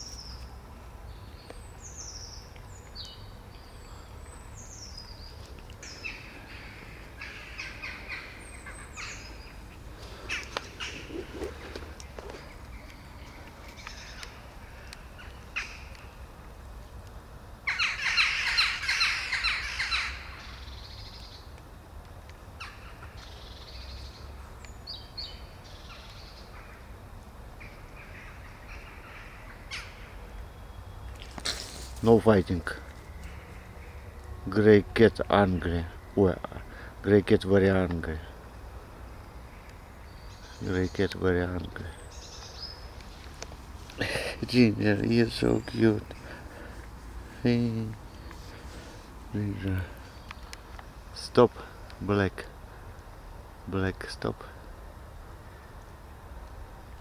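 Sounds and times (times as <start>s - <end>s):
high bird calls: 1.2s - 16.2s, 17.7s - 21.5s, 39.0s - 52.3s.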